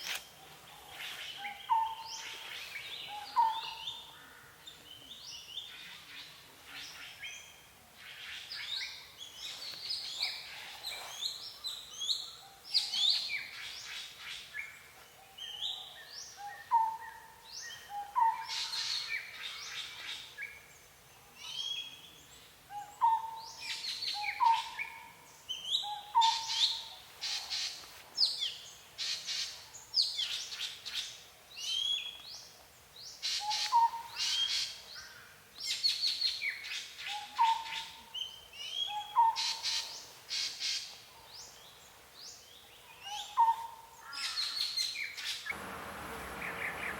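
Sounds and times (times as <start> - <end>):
birds singing and chirping: 0.0 - 20.8, 21.4 - 45.6, 46.2 - 46.9.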